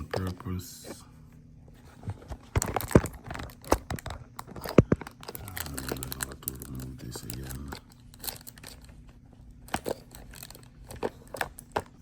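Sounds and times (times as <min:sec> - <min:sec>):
plastic packaging crinkling: 0:02.1 - 0:12.0.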